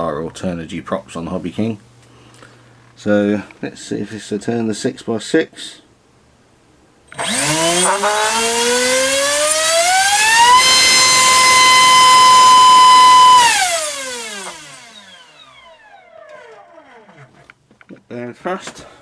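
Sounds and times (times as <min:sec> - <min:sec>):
electric motor whining: 0:07.1 - 0:17.5.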